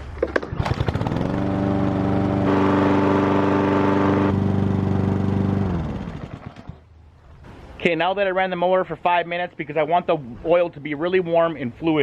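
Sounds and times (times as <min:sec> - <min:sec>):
lawn mower engine running: 0:00.3 - 0:06.9.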